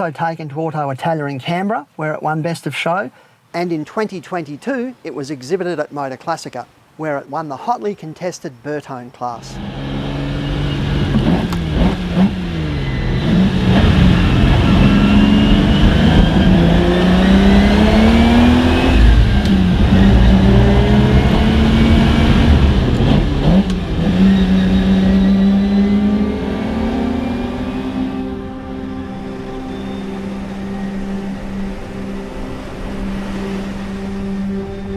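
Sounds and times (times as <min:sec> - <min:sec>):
car engine accelerating hard: 0:09.4 - 0:34.9.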